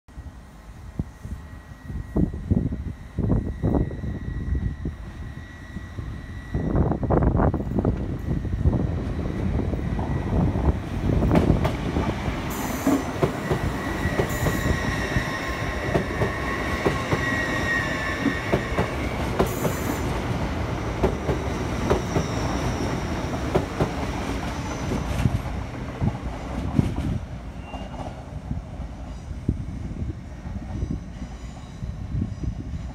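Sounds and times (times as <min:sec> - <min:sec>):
train running gear whine: 0:00.1 - 0:32.9
train wheels rumbling and clicking: 0:07.6 - 0:28.9.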